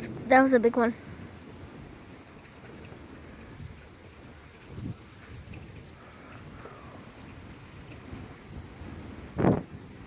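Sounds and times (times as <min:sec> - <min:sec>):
steady rain: 0:00.0 - 0:10.0
wind rumble on microphone: 0:00.0 - 0:10.0.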